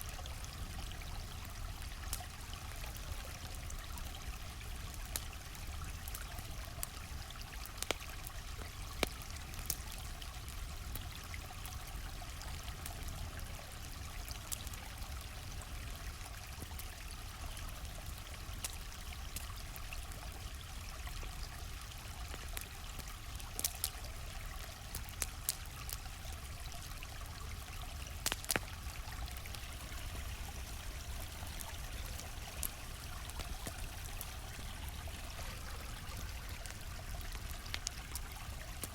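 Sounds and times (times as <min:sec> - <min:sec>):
campfire crackling: 0:00.0 - 0:38.9
stream flowing: 0:00.0 - 0:38.9.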